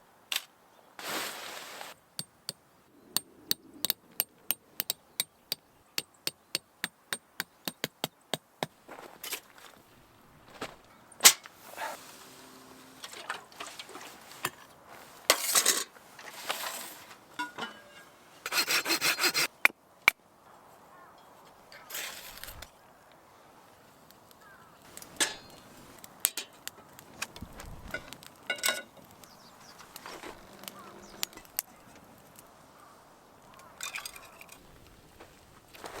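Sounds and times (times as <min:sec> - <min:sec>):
sawing wood: 0:18.4 - 0:19.6.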